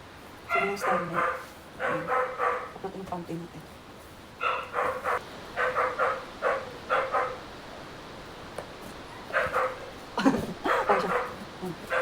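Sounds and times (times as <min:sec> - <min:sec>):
dog barking: 0:00.5 - 0:02.8, 0:04.4 - 0:07.5, 0:09.2 - 0:09.9, 0:10.7 - 0:12.0.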